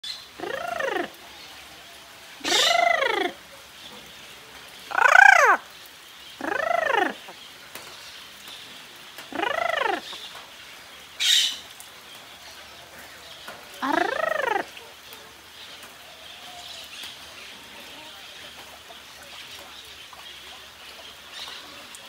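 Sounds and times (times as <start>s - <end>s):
parrot drawn-out calls: 2.4s - 3.4s, 4.9s - 5.6s, 9.3s - 10.1s, 13.8s - 14.7s
parrot harsh squawk: 2.4s - 3.4s, 4.9s - 5.6s, 13.8s - 14.7s.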